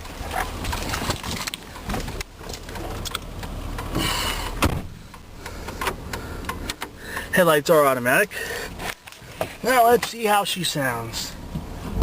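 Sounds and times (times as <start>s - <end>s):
truck door thud: 4.4s - 5.0s.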